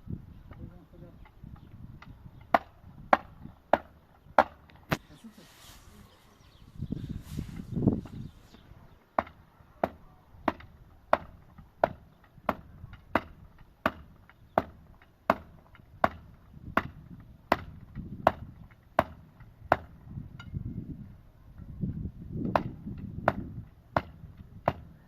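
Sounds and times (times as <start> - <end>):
blows struck on wood: 1.5 - 5.1, 9.2 - 20.6, 22.4 - 25.0.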